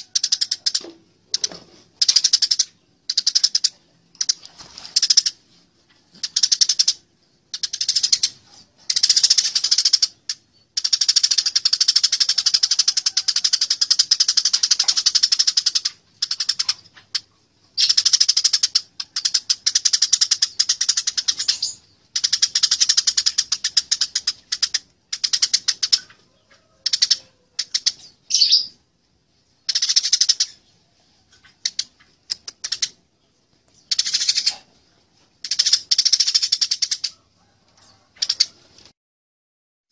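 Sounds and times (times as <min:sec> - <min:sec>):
sparrows chirping harshly: 0:06.2 - 0:26.2, 0:26.9 - 0:28.8, 0:29.6 - 0:34.8.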